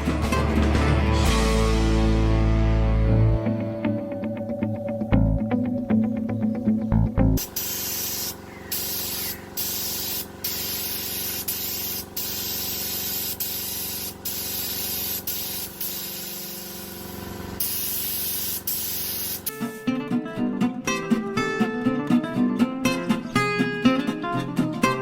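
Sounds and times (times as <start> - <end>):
loud spraying hiss: 7.4 - 19.6.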